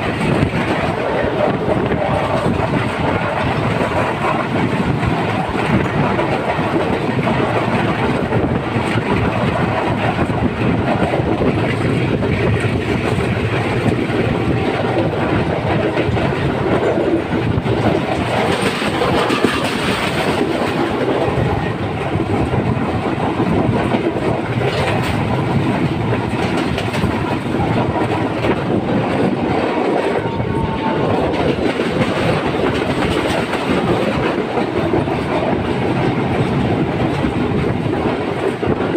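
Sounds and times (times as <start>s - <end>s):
train wheels on rails: 0.0s - 38.9s.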